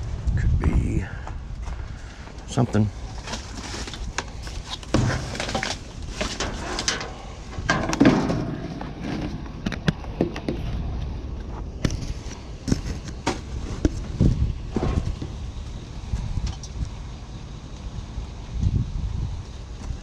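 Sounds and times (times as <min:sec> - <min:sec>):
junk being rummaged through: 0:02.7 - 0:15.4.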